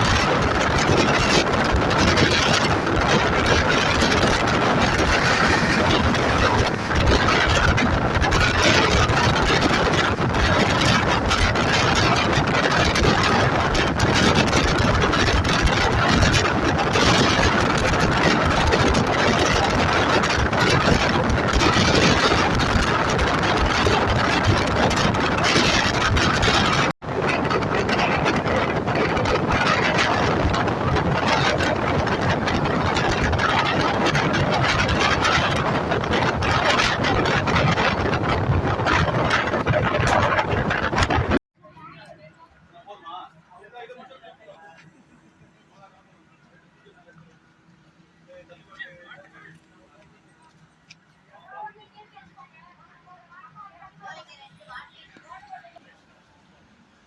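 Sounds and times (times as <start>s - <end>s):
rushing air: 0.0s - 41.4s
train rumbling on rails: 0.0s - 41.4s
faint clicks of wheels: 44.7s - 51.5s.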